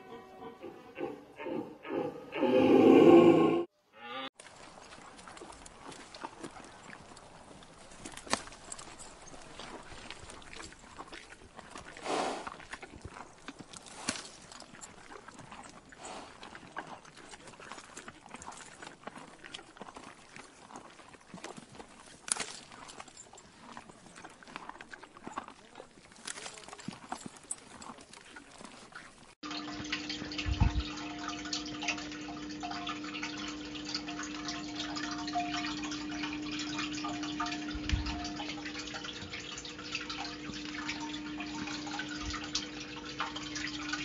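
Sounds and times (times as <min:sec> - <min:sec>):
horse chewing grass: 0:04.4 - 0:44.0
steady underwater hum: 0:29.4 - 0:44.0
low bubbly thump: 0:30.2 - 0:31.1, 0:37.5 - 0:38.4.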